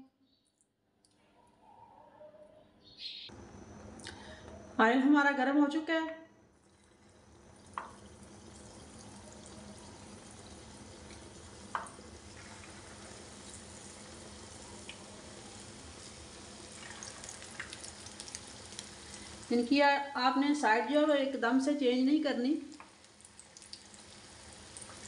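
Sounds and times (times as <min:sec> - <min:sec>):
batter frying in oil: 0:06.5 - 0:25.0
oil crackling: 0:06.6 - 0:19.7, 0:22.6 - 0:25.0.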